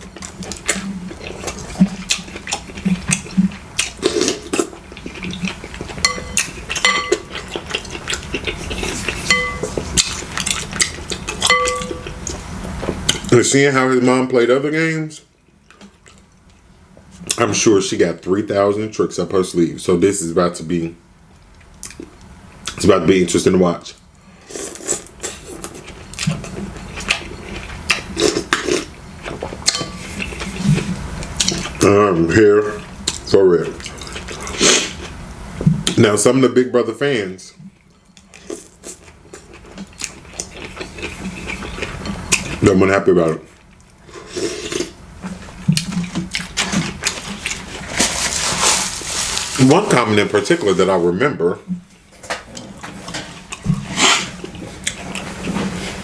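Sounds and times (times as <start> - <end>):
utensils clinking against a dish: 6.0 - 7.9, 8.5 - 12.2, 29.7 - 30.4
cutlery clinking against dishes: 6.1 - 7.4, 9.2 - 9.7, 11.4 - 12.1, 29.7 - 30.1.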